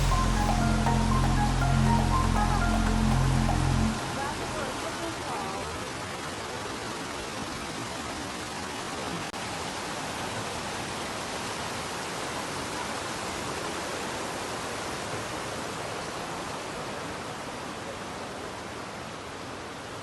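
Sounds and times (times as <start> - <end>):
waterfall rushing: 0.0 - 14.2.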